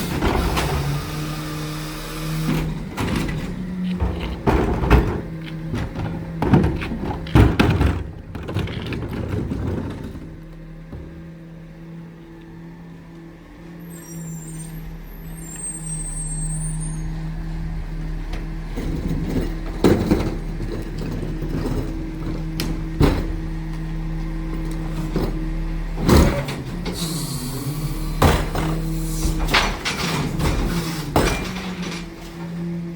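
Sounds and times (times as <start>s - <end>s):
diesel engine running: 0.0s - 32.9s
loud bangs and clanks: 2.4s - 11.3s, 28.1s - 32.3s.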